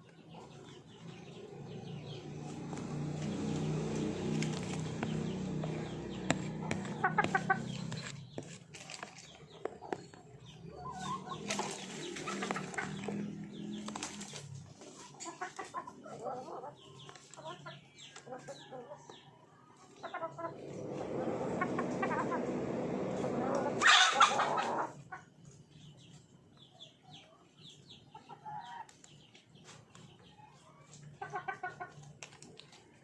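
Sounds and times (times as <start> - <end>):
chickens clucking: 0.0 - 33.0
wings flapping: 2.5 - 7.9, 11.0 - 14.6.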